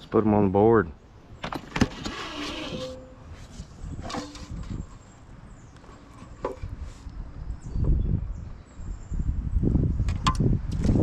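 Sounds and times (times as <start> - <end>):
short rubbing squeaks: 1.4 - 5.0.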